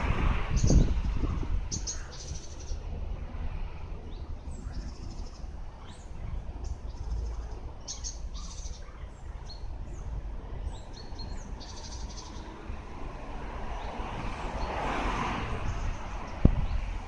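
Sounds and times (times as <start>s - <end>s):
small birds chirping: 0.5s - 3.0s, 4.0s - 12.7s, 15.5s - 17.0s.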